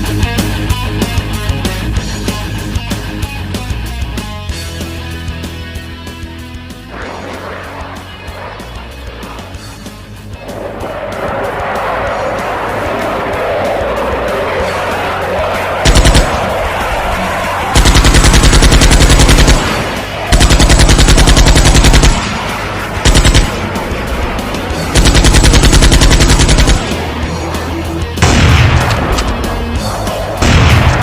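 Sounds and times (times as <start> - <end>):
machine-gun fire bursts: 15.8 - 16.5, 17.8 - 23.8, 24.9 - 27.2.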